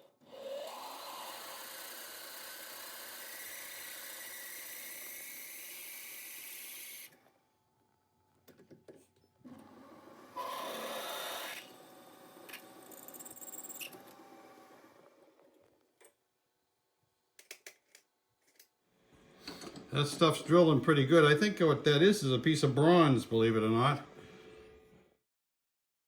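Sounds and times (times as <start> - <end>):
metal lathe running: 0.4 - 5.0.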